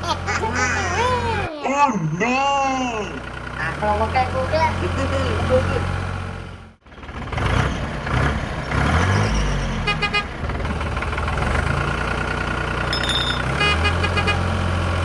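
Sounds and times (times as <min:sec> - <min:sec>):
truck engine humming: 0:00.0 - 0:06.7, 0:10.8 - 0:15.0.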